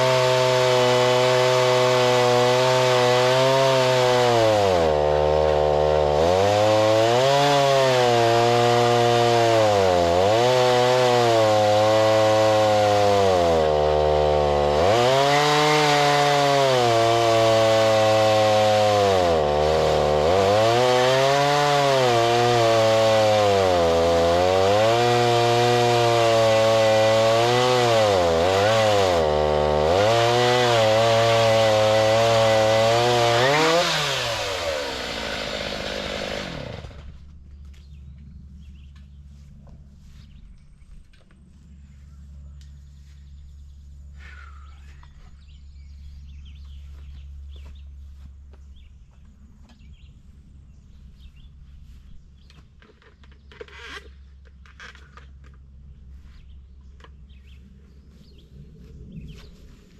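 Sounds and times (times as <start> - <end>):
gas-engine saw cutting log: 0.0 - 37.2.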